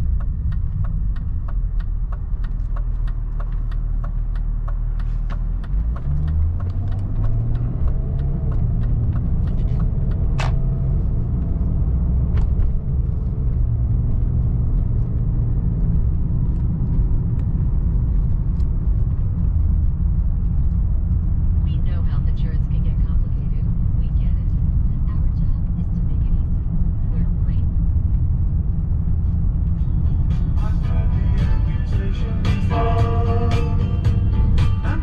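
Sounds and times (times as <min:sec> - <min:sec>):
light ticking: 0:00.0 - 0:10.8
car engine pulling away: 0:00.0 - 0:35.0.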